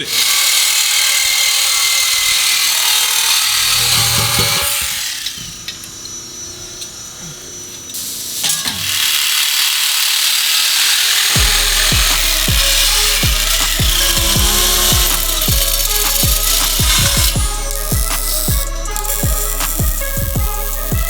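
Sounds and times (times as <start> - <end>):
power tools: 0.0 - 21.0
ratchet clicking: 8.4 - 21.0
deep bass beat: 11.4 - 21.0.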